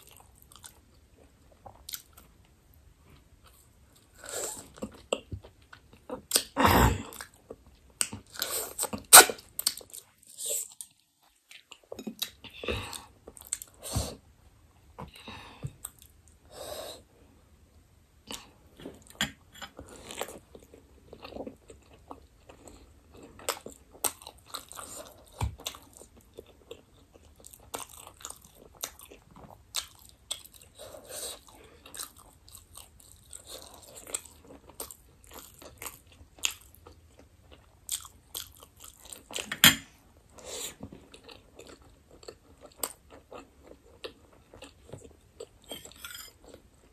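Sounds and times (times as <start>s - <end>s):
person chewing: 0.0s - 2.3s, 3.1s - 14.2s, 18.3s - 46.9s.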